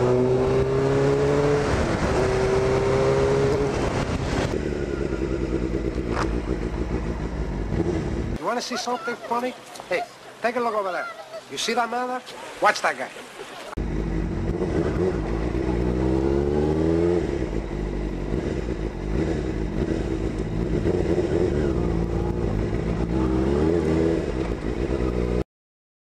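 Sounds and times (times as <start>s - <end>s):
motorcycle engine accelerating: 0.0s - 8.4s, 13.8s - 25.4s.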